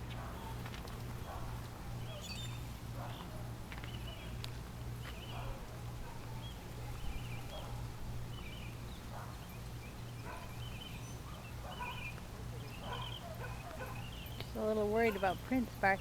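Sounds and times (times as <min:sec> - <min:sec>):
faint dog barking: 0:00.1 - 0:02.3, 0:02.9 - 0:04.4, 0:05.2 - 0:08.0, 0:09.0 - 0:09.5, 0:10.2 - 0:14.3, 0:15.0 - 0:15.4.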